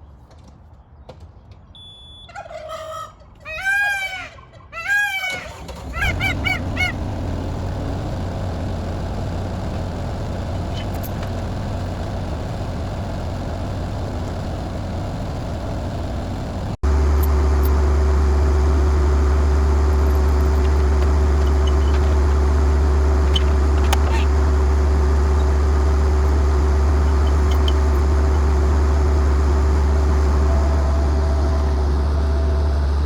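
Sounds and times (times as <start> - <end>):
turkey gobbling: 2.3 - 7.0, 23.3 - 24.3
skid steer engine running: 5.5 - 33.0
steady hum: 6.0 - 33.0.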